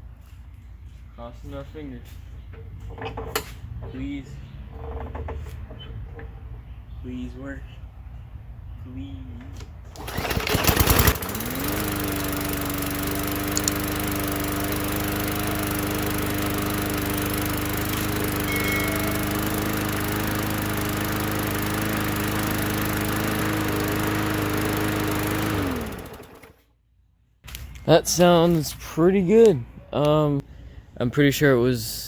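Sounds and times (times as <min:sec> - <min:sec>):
push mower engine running: 0:09.9 - 0:26.6.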